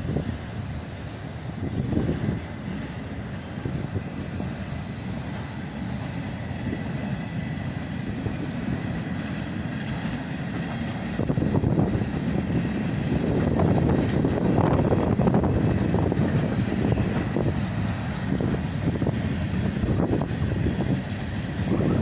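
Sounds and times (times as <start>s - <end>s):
freight train wheels rumbling on rails: 0.0s - 22.0s.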